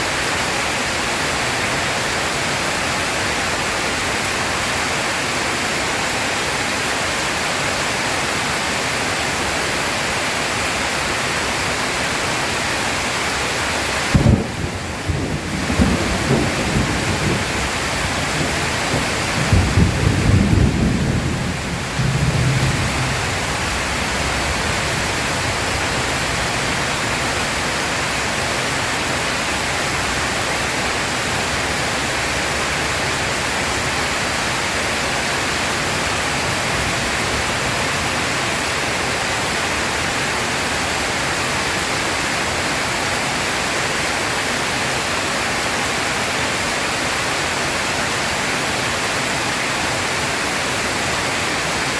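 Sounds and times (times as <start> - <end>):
heavy rain pouring: 0.0 - 51.9
low thunder rumble: 14.1 - 27.5.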